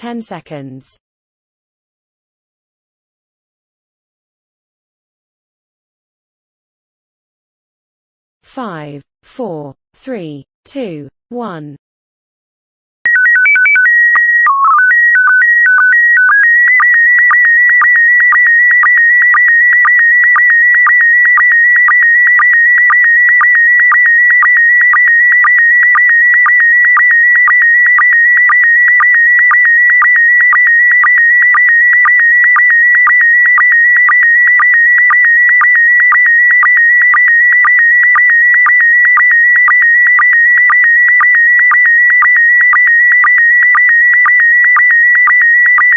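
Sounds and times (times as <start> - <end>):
electronic tone hopping pitches: 13.1 - 43.8.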